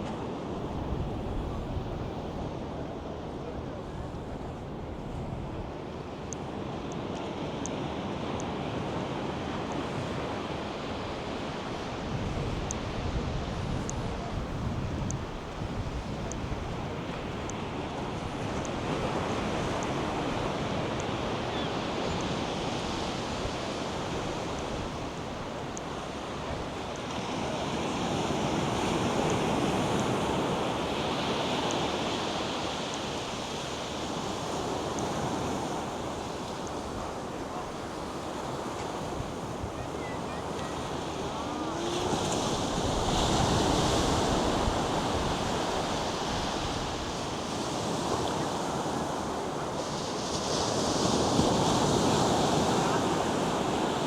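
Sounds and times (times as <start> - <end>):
wind buffeting microphone: 0.6 - 2.6, 11.8 - 17.5.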